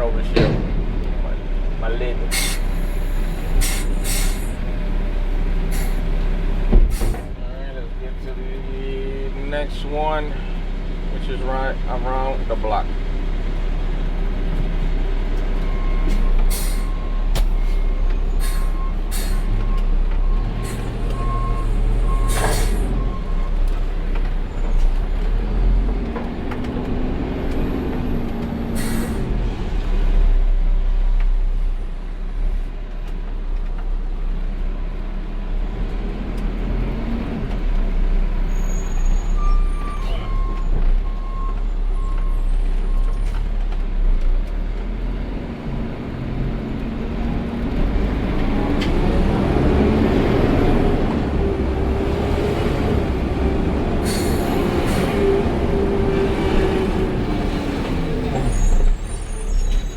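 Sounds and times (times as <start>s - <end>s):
air brakes hissing: 2.3s - 4.6s, 5.7s - 6.1s, 6.9s - 7.3s, 16.1s - 16.9s, 17.5s - 19.5s, 20.6s - 21.6s, 22.2s - 22.9s, 28.7s - 29.3s, 53.9s - 55.4s.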